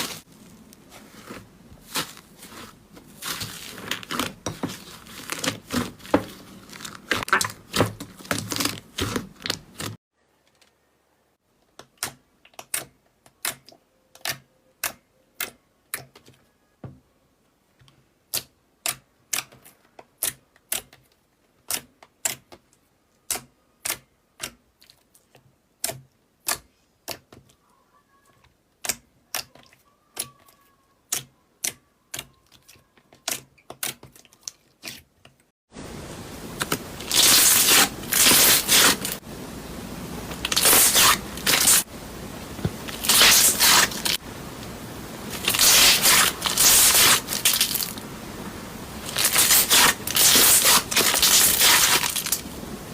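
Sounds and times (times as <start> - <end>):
slime crackling and scraping: 0.0 - 10.0, 36.6 - 39.2, 40.2 - 41.9, 42.6 - 44.2, 45.2 - 48.0, 49.0 - 52.5.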